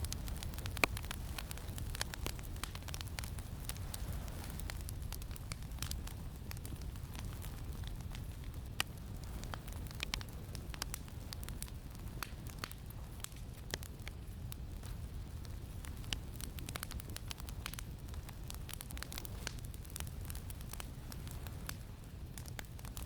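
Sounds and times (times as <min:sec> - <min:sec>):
low wind rumble: 0:00.0 - 0:13.1
campfire crackling and popping: 0:00.0 - 0:23.0.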